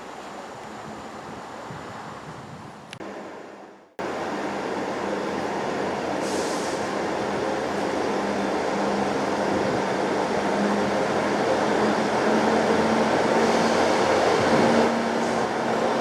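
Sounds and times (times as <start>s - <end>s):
diesel train engine hum: 0.0s - 16.0s
short air hiss: 6.2s - 6.9s.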